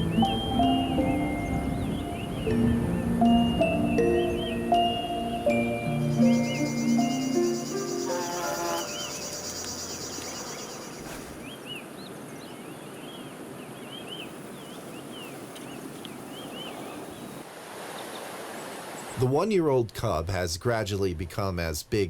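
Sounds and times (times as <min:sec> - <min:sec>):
mallet percussion music: 0:00.0 - 0:08.1
small birds chirping: 0:03.3 - 0:17.4.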